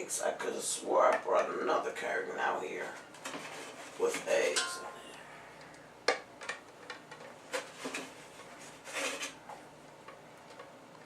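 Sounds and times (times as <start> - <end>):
scraping rustle: 7.5 - 9.4.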